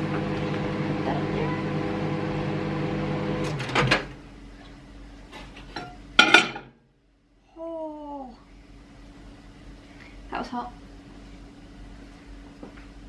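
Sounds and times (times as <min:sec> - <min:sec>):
microwave oven humming: 0:00.0 - 0:13.0
dish clattering: 0:05.8 - 0:06.7.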